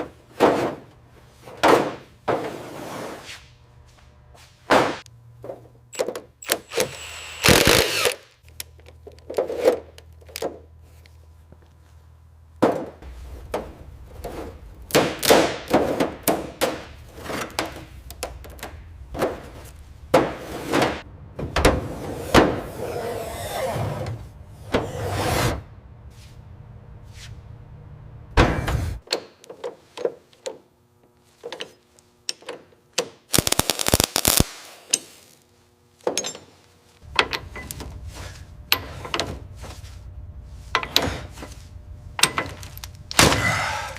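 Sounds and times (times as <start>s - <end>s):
low steady hum: 3.5s - 29.0s, 35.4s - 43.9s
noisy bursts of tool work: 5.9s - 8.3s
tool knocks and clanks: 36.0s - 38.0s, 38.7s - 39.8s, 40.7s - 41.6s.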